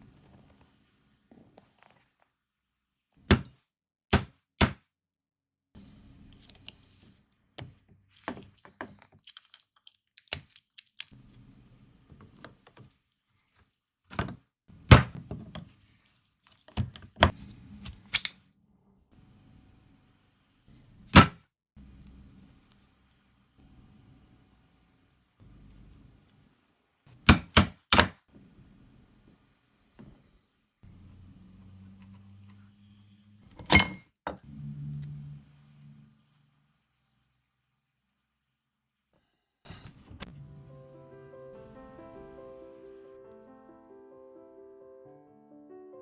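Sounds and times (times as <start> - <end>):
metal tools knocking and clanking: 33.5 - 34.4.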